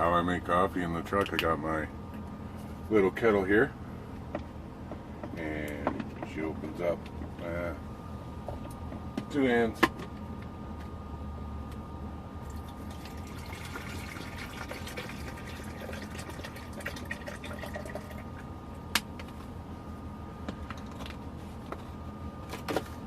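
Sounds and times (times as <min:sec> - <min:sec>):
water pouring into kettle: 0:12.5 - 0:18.4.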